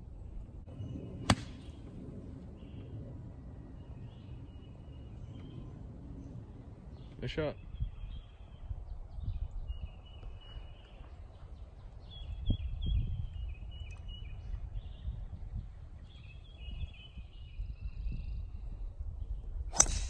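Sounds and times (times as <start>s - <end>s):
songbird singing: 0.0s - 20.0s
golf club striking ball: 1.2s - 2.0s, 19.7s - 20.0s.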